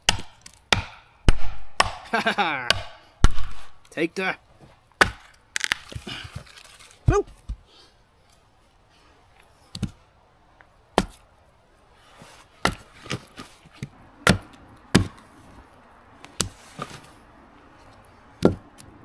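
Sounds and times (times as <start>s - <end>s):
axe chopping wood: 0.0s - 3.8s, 5.0s - 6.4s, 11.0s - 11.2s, 12.6s - 15.2s, 16.3s - 16.6s, 18.4s - 18.7s.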